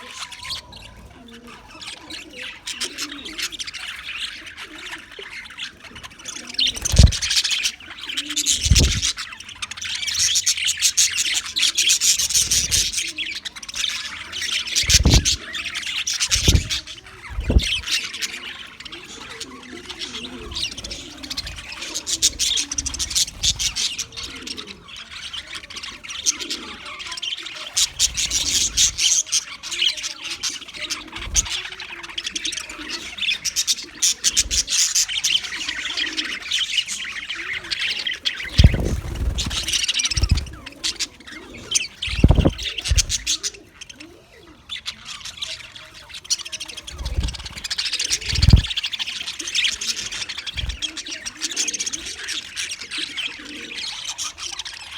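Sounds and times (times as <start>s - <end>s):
budgerigar chattering and warbling: 0.0s - 25.2s, 25.9s - 54.9s
low thumps: 8.6s - 9.1s, 14.9s - 15.4s, 16.3s - 16.8s, 17.4s - 17.9s, 38.5s - 40.6s, 42.1s - 43.2s, 48.2s - 48.7s.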